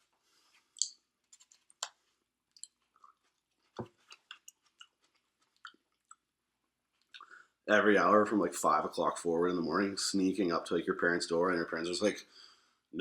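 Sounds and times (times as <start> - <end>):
soft crunches: 0.4 - 6.2
person chewing food: 0.7 - 6.3.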